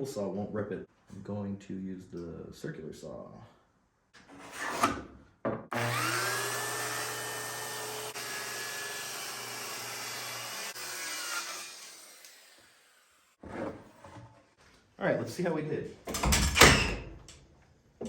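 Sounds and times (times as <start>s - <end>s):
circular saw ripping wood: 5.7s - 13.4s.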